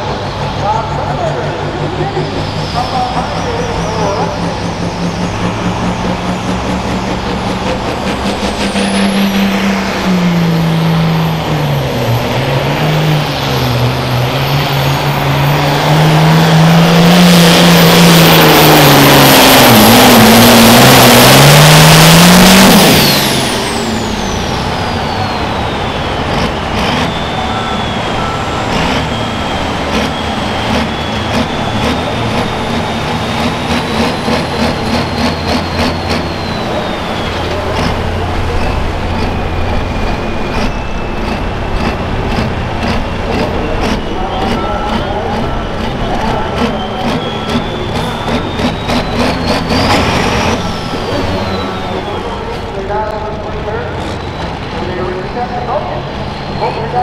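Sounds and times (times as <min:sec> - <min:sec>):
tractor diesel engine: 0:00.0 - 0:57.0
turbo whine: 0:00.0 - 0:57.0.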